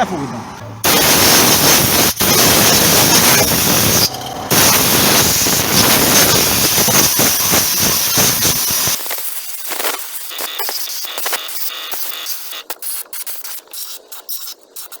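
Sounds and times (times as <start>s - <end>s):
compressed air blow gun hissing: 0.8s - 9.5s.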